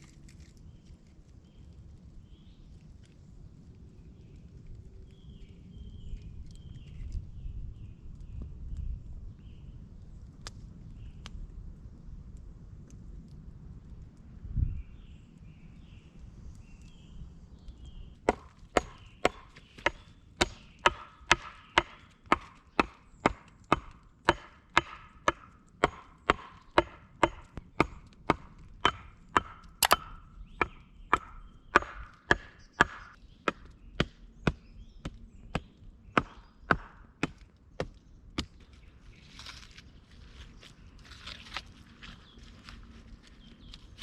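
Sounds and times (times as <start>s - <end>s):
wood being chopped: 18.3s - 38.6s.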